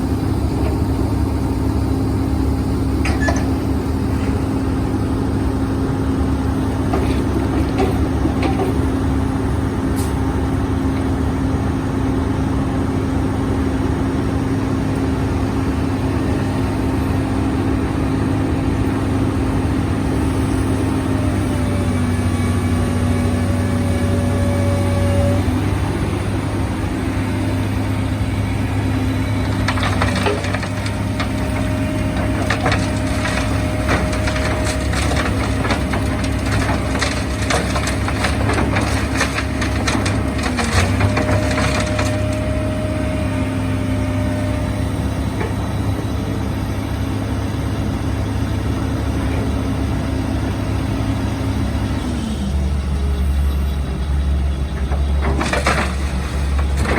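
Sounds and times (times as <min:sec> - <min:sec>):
heavy machine engine running: 0:00.0 - 0:56.9
soil and stones crunching: 0:19.7 - 0:44.8.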